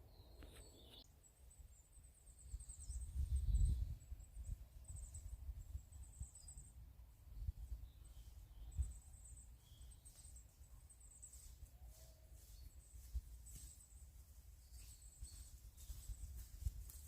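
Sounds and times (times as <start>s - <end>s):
small bird singing trills: 0.0s - 16.9s.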